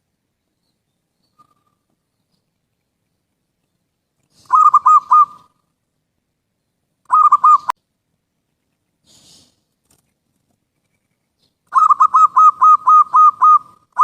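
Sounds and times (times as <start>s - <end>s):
dove cooing: 4.4s - 5.6s, 7.1s - 7.7s, 11.7s - 14.0s.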